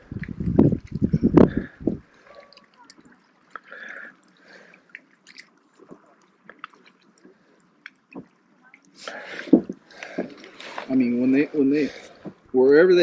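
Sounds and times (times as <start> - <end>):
water dripping and lapping: 0.0 - 13.0
faint clicks and ticks: 2.2 - 11.0.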